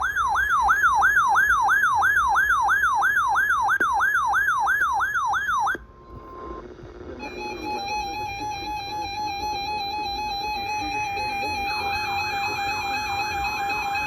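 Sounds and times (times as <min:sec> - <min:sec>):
electronic siren yelping: 0:00.0 - 0:06.6, 0:07.2 - 0:14.0.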